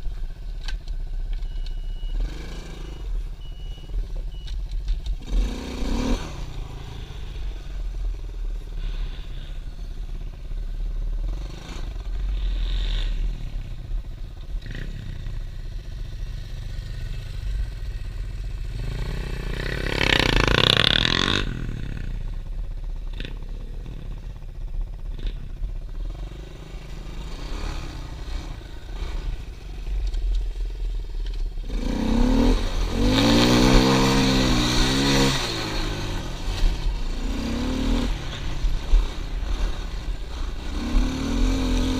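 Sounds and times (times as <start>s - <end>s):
pit bike engine revving: 5.2s - 7.6s, 31.6s - 41.9s.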